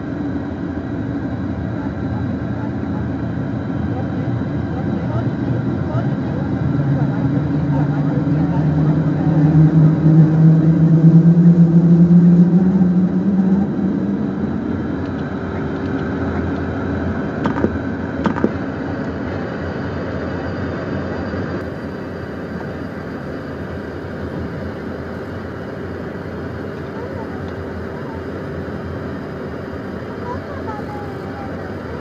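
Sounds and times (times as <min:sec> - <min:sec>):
jet engine drone in cockpit: 0:00.0 - 0:32.0.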